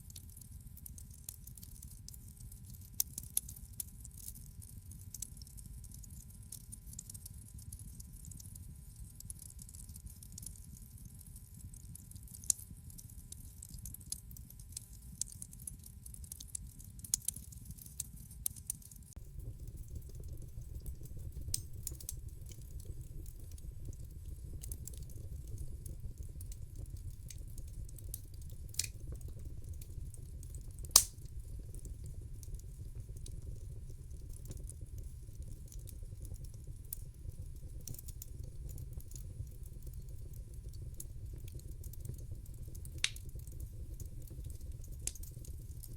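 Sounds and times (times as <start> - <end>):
wood fire crackling and popping: 0.0 - 45.9
low steady rumble: 19.2 - 45.9.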